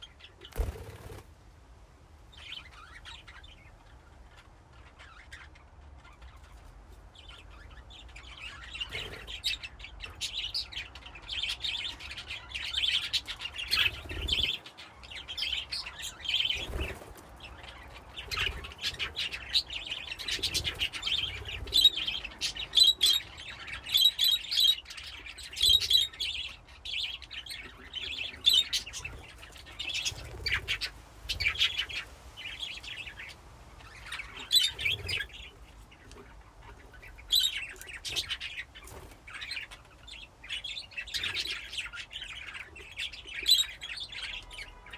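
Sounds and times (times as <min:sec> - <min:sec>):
budgies chirping and warbling: 0:00.0 - 0:01.2, 0:02.3 - 0:44.9.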